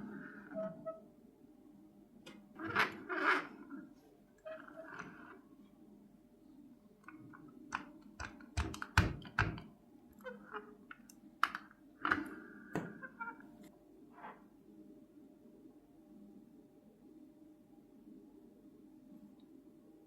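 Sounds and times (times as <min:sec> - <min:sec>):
small parts and tools tapping: 0:07.0 - 0:12.9.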